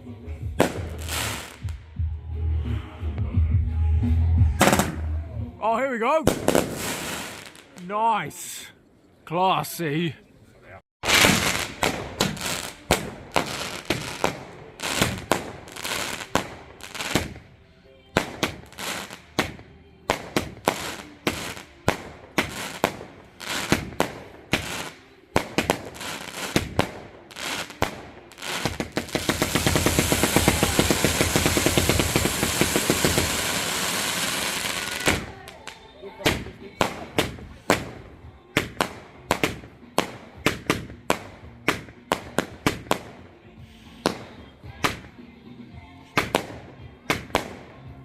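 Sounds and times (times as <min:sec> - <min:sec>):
fireworks bangs: 0:00.5 - 0:01.8, 0:04.6 - 0:05.1, 0:06.2 - 0:07.8, 0:11.0 - 0:17.4, 0:18.2 - 0:38.0
fireworks crackle: 0:00.6 - 0:01.8, 0:06.3 - 0:07.9, 0:11.0 - 0:17.4, 0:18.2 - 0:38.0.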